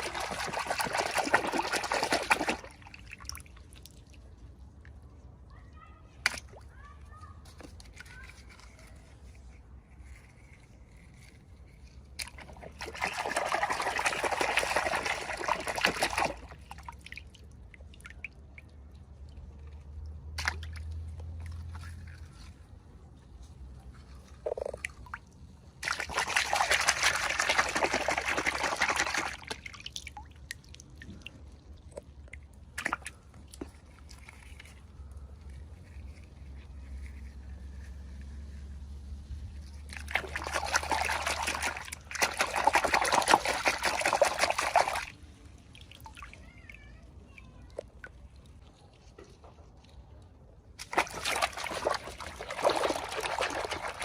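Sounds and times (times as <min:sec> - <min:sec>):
liquid being poured: 0:00.0 - 0:04.7, 0:12.1 - 0:22.5, 0:24.0 - 0:35.2, 0:39.8 - 0:46.6, 0:50.8 - 0:54.0.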